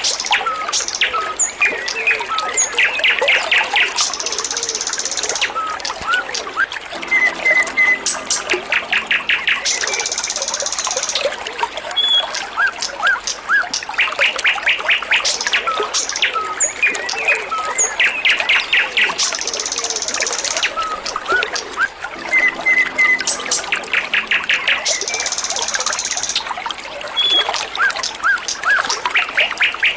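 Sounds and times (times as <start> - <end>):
trickle of running water: 0.0 - 29.9
songbird chirping and trilling: 6.9 - 29.9.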